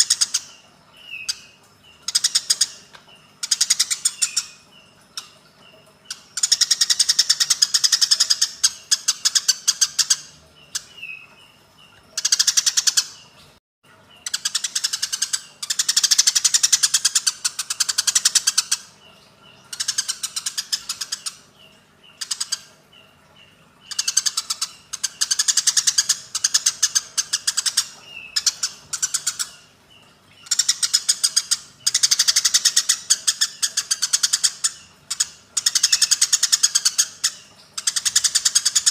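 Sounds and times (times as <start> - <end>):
sparrow chirps: 0.0 - 13.3, 14.1 - 38.9
sparrows chattering harshly: 0.0 - 13.4.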